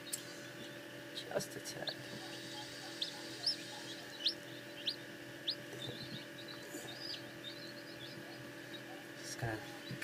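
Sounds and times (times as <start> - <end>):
background hum: 0.0 - 10.0
chick peeping: 0.0 - 10.0.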